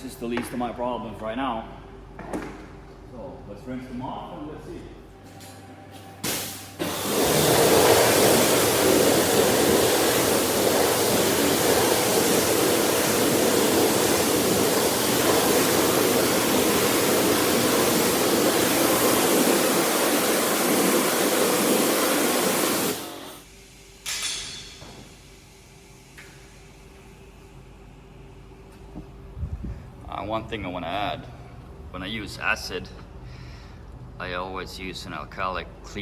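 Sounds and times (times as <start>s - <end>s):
pressure washer spraying water: 6.2s - 23.5s.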